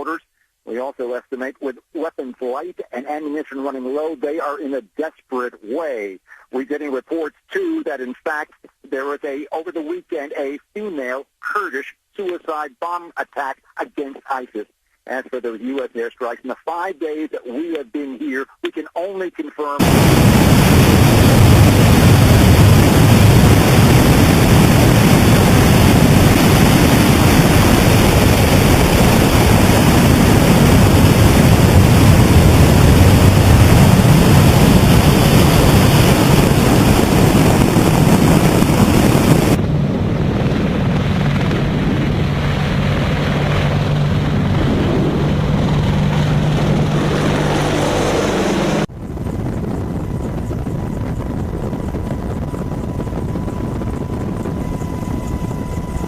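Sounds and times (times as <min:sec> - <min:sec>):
helicopter rotor noise: 0:19.8 - 0:56.0.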